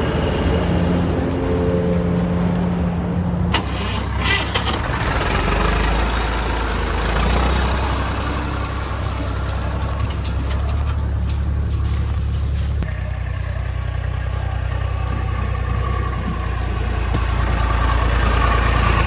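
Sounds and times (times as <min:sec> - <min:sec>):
diesel engine running: 0:00.0 - 0:19.0
light clattering and clicks: 0:07.7 - 0:12.5.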